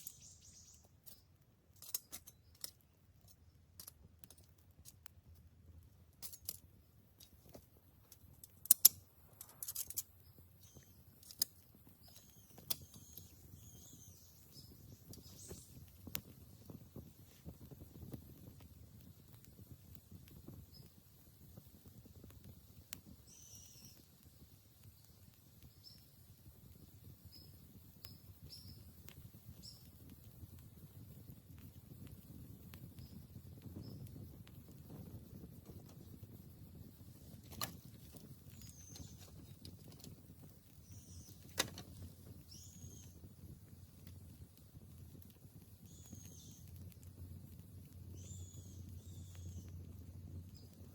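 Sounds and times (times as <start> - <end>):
small bird chirping: 0.0 - 4.5, 8.6 - 18.5, 20.4 - 21.0, 23.0 - 24.2, 24.8 - 26.3, 27.1 - 44.2, 45.7 - 50.9
faint clicks and crackles: 0.0 - 50.9.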